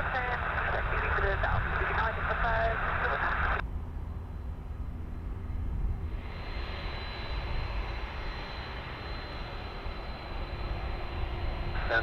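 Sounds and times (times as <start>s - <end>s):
radio static hiss: 0.0s - 3.6s, 11.8s - 12.0s
jet airliner engines rumbling: 0.0s - 12.0s.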